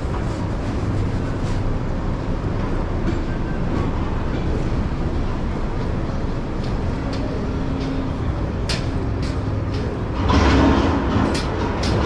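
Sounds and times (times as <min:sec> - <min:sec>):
rumble of traffic: 0:00.0 - 0:12.0.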